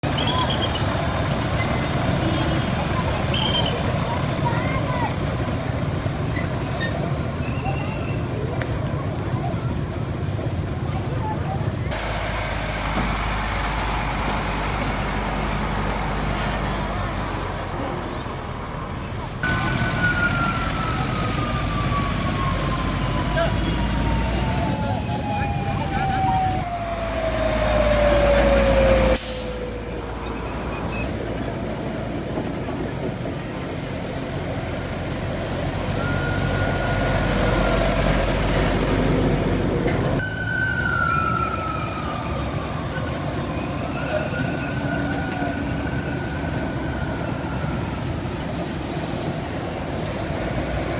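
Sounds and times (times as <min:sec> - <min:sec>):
truck engine running: 0:08.9 - 0:40.2
hiss: 0:29.2 - 0:29.9.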